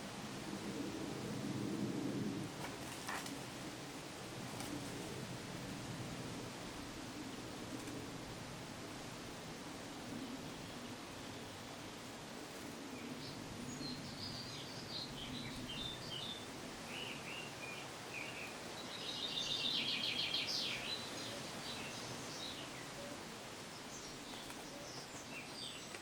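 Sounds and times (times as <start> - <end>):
background hiss: 0.0 - 26.0
small bird singing: 13.0 - 26.0.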